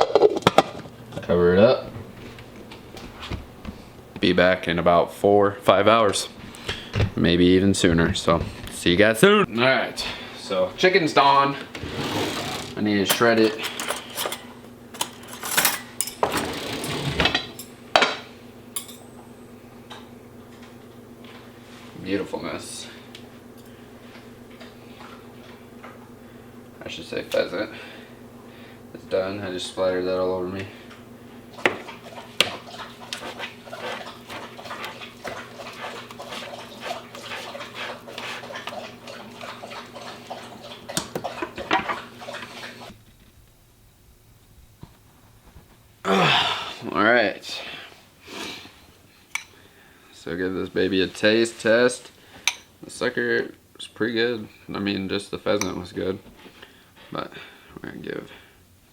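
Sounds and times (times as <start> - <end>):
metal utensils scraping a dish: 11.9 - 17.7.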